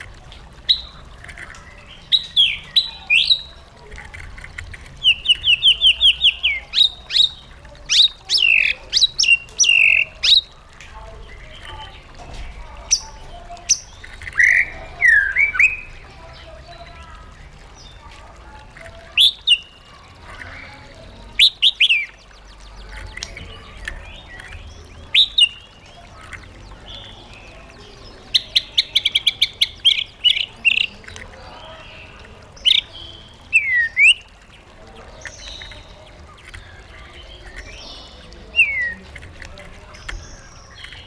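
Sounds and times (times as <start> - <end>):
bird singing whistled phrases: 5.0 - 10.5, 13.7 - 15.9, 21.3 - 31.0, 32.6 - 34.3, 37.2 - 39.0.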